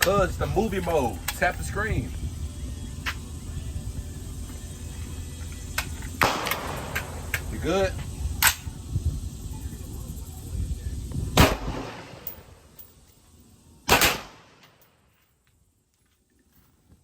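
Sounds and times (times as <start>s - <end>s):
handgun gunshots: 6.2s - 7.5s, 13.9s - 14.9s.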